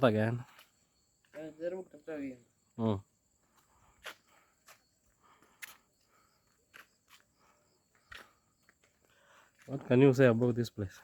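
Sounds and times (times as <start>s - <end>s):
soft footsteps: 3.4s - 11.0s.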